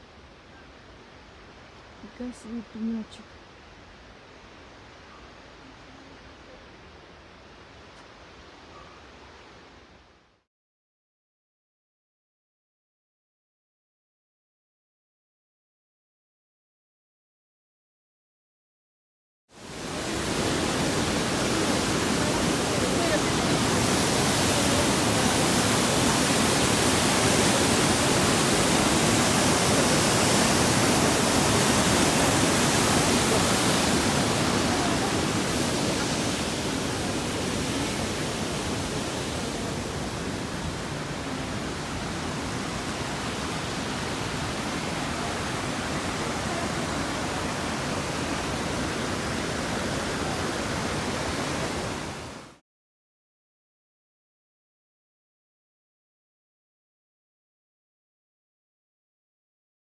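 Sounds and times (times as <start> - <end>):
rushing river water: 19.6 - 52.6.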